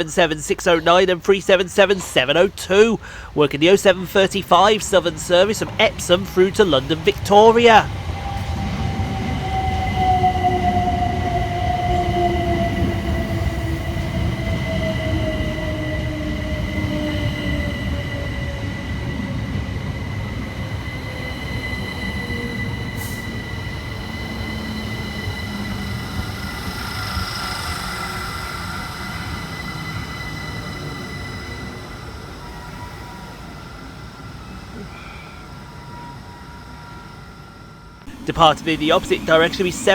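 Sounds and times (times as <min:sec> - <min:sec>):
wheels rumbling on rails: 0:00.0 - 0:35.1, 0:36.6 - 0:39.9
steady high whine: 0:37.4 - 0:39.9.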